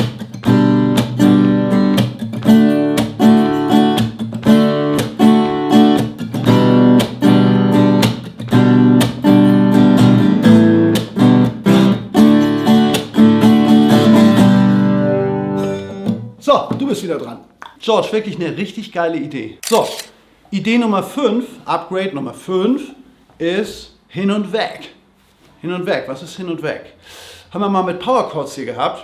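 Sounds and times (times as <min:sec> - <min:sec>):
acoustic guitar strumming: 0:00.0 - 0:16.4.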